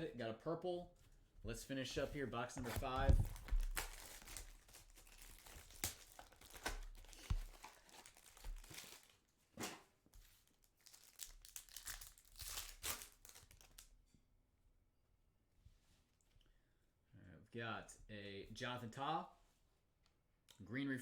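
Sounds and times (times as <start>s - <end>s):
packaging crinkling and tearing: 2.6s - 9.7s, 10.4s - 13.9s.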